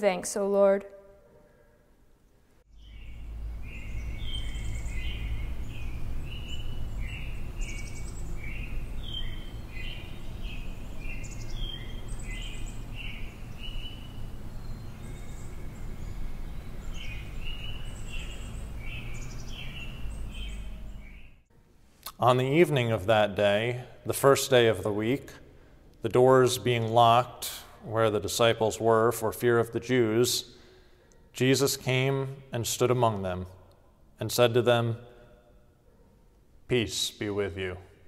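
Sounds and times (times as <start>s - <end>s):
songbirds chirping: 1.3s - 38.0s
low steady rumble: 2.7s - 21.3s.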